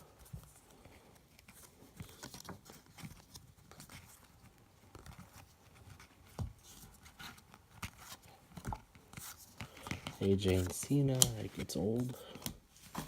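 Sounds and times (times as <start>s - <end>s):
cards clicking and tapping: 7.7s - 13.0s.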